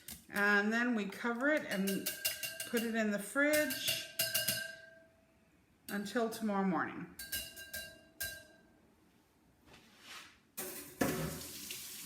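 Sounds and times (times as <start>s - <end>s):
dishware clinking: 7.2s - 8.6s
tap water running into sink: 10.6s - 12.0s.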